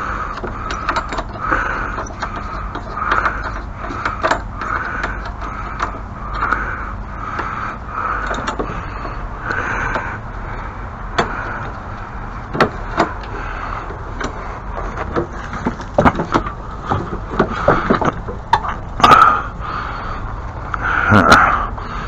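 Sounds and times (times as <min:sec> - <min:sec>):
objects knocking and scraping: 0:00.0 - 0:06.6, 0:11.2 - 0:19.2.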